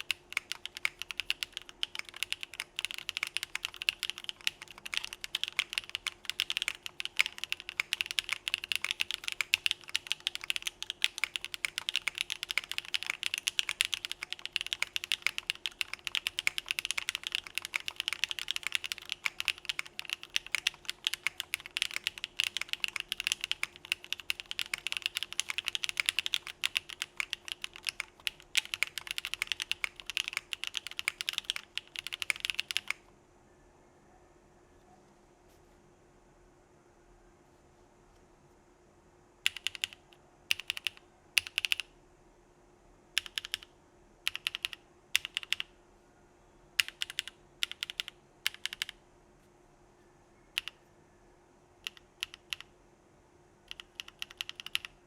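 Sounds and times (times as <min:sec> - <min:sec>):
typing on mechanical keyboard: 0:00.0 - 0:33.1, 0:39.4 - 0:41.9, 0:43.2 - 0:45.7, 0:46.8 - 0:49.0, 0:50.5 - 0:50.8, 0:51.8 - 0:52.7, 0:53.7 - 0:55.0.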